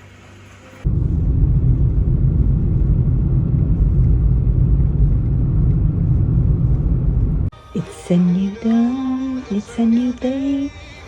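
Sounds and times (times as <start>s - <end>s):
loud low rumble: 0.8s - 7.5s.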